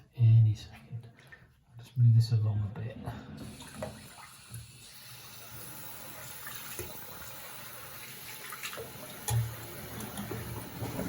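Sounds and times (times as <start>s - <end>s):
tap water running into sink: 3.4s - 11.0s.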